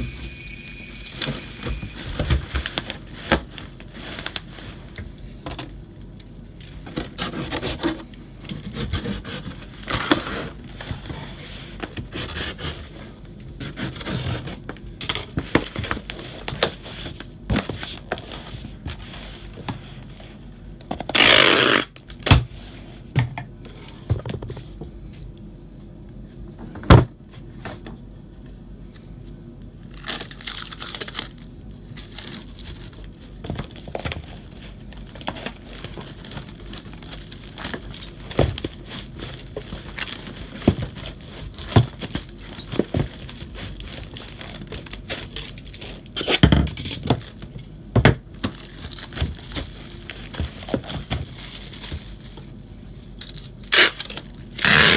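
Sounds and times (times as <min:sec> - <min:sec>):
rustling and crinkling: 0:01.4 - 0:08.5, 0:09.4 - 0:23.1, 0:24.0 - 0:54.9.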